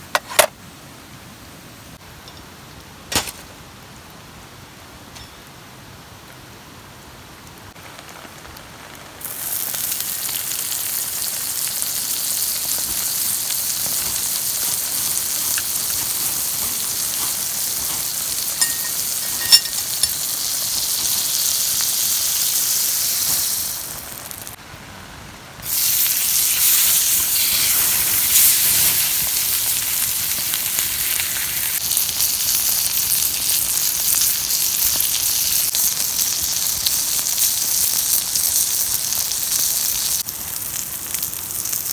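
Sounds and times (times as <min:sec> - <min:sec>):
food sizzling on griddle: 0:09.2 - 0:24.6, 0:25.6 - 0:41.9.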